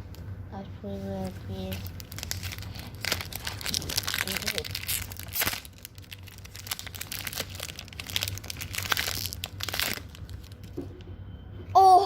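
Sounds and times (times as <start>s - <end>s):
foil wrapper crinkling: 1.6s - 10.8s.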